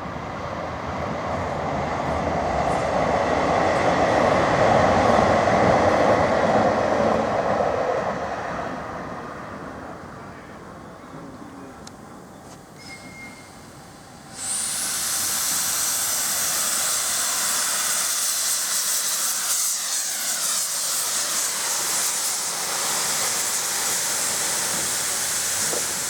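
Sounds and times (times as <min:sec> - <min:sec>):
train running past: 0:00.0 - 0:26.0
falling whines: 0:12.7 - 0:23.7.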